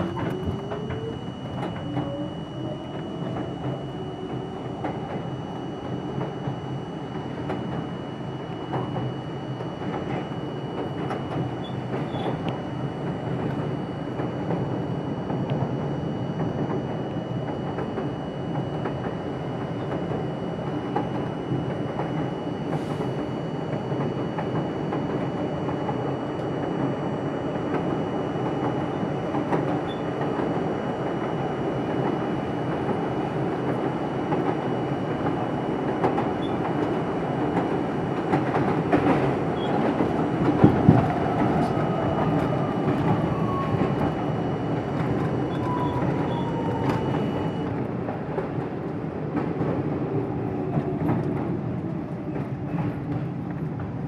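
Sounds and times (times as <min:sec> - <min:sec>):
rail joint clicks: 0:00.0 - 0:06.4, 0:08.7 - 0:15.8, 0:27.6 - 0:50.0
train whine falling in pitch: 0:00.0 - 0:51.6
train wheels rumbling on track: 0:00.0 - 0:54.0.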